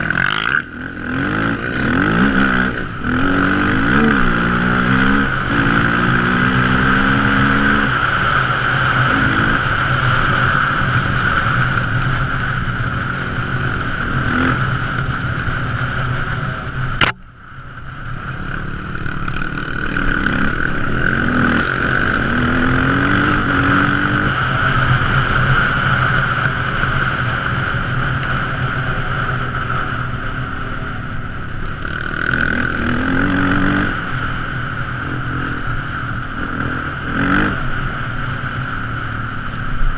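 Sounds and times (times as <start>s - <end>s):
atv engine revving: 0.0s - 17.2s, 18.0s - 39.9s
sharp click: 17.0s - 17.2s.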